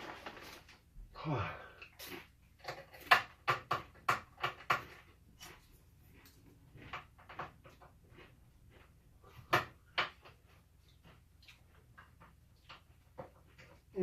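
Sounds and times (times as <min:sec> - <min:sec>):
hand tools and plastic parts clicking: 0:01.8 - 0:08.2.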